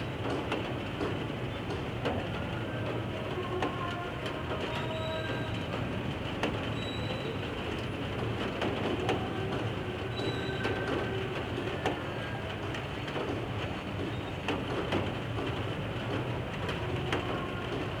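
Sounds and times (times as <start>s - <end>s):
clicks and knocks of train: 0.0s - 18.0s
train rumbling on tracks: 0.0s - 18.0s.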